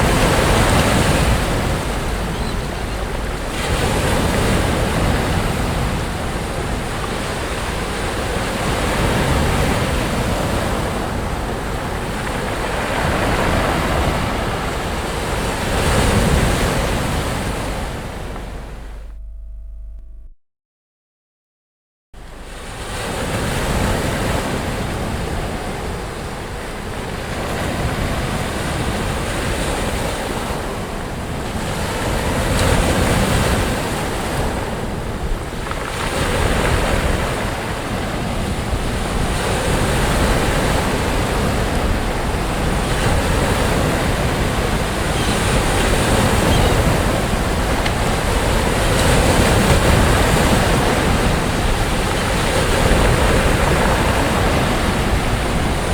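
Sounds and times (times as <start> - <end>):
sea waves breaking on beach: 0.0 - 19.0, 22.2 - 55.9.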